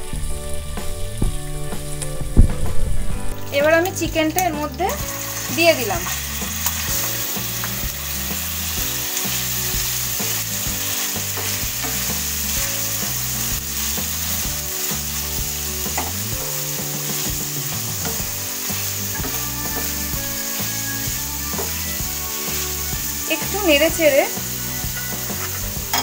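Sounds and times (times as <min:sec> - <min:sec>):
chicken sizzling in hot oil: 0:03.4 - 0:26.0.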